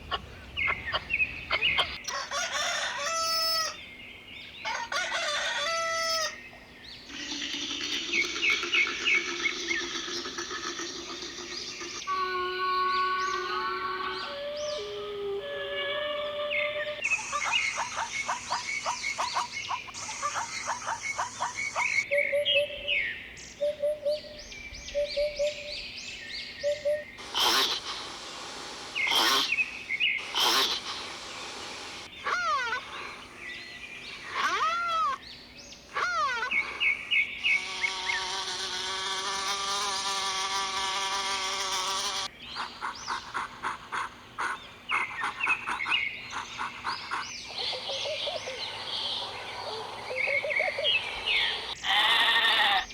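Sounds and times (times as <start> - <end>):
chirping trills: 0.0 - 3.8, 4.7 - 52.9
long steady animal call: 7.1 - 22.8, 26.6 - 52.9
short repeated animal notes: 27.2 - 33.2
arching animal calls: 27.2 - 35.2, 35.9 - 42.3, 47.5 - 52.9.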